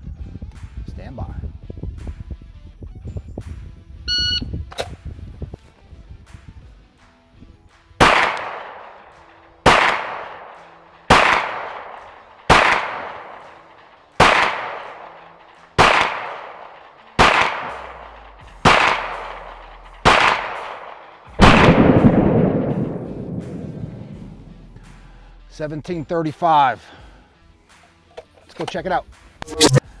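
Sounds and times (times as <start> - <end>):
pistol shots echoing: 8.0 - 25.2.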